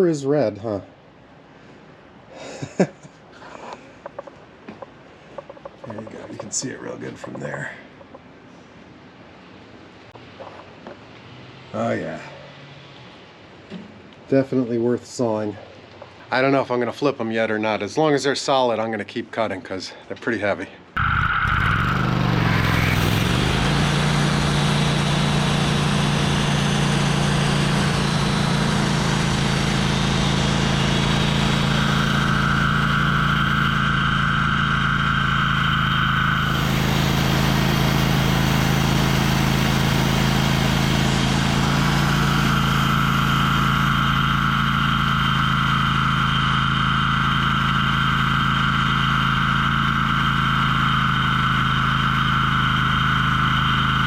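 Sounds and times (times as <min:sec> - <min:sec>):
band saw cutting whine: 0:21.0 - 0:54.0
sawmill engine running: 0:21.0 - 0:54.0.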